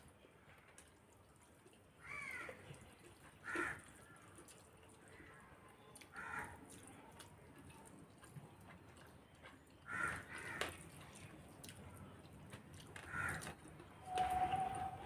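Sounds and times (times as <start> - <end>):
crow cawing: 2.0 - 2.6, 3.4 - 4.2, 6.1 - 6.6, 9.9 - 10.7, 13.1 - 13.6.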